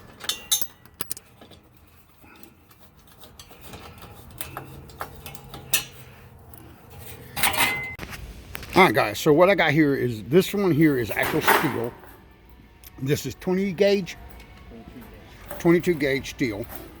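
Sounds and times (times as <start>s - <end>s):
wrench clicking on bolts: 0.2s - 1.2s.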